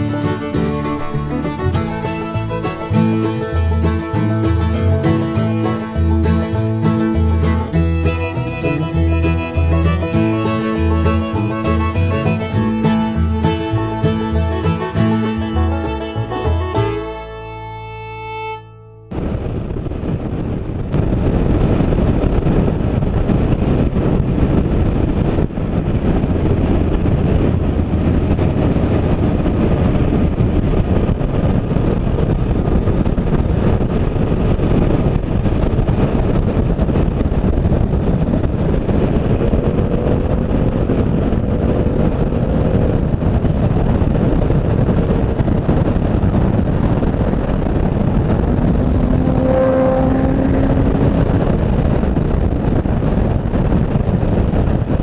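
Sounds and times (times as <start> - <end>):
wind rushing over microphone: 0.0 - 55.0
faint motorcycle engine: 35.0 - 53.4.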